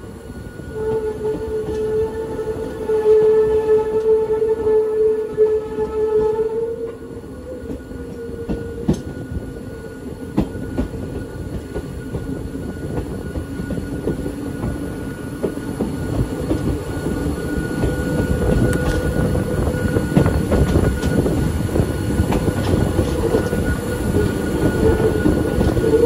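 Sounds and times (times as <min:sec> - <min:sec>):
train wheels rumbling on rails: 0:00.0 - 0:26.0
whine: 0:06.9 - 0:26.0.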